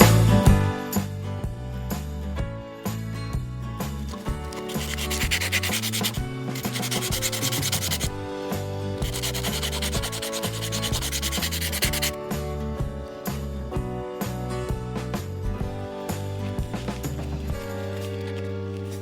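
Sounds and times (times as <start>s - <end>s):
background music: 3.1s - 19.0s
hand sanding a workpiece: 4.1s - 8.2s, 9.0s - 12.2s.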